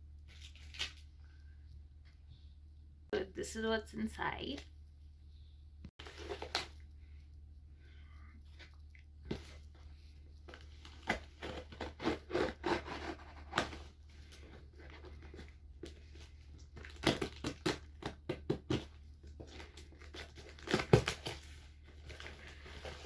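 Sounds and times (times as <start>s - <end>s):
low steady hum: 0.0s - 23.0s
packaging crinkling and rustling: 0.3s - 1.1s, 6.0s - 6.9s, 8.5s - 23.0s.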